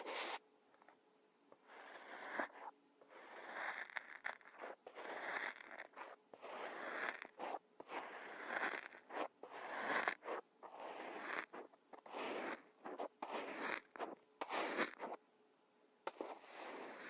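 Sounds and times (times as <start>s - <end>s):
kinetic sand scraping: 3.7s - 15.2s, 16.1s - 17.0s.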